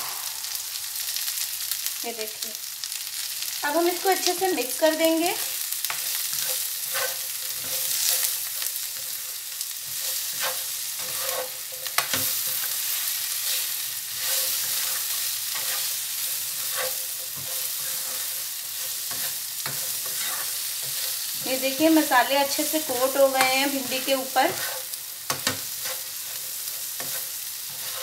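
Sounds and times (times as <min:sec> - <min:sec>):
okra sizzling in oil: 0:00.0 - 0:28.0
spatula stirring and scraping: 0:05.3 - 0:28.0.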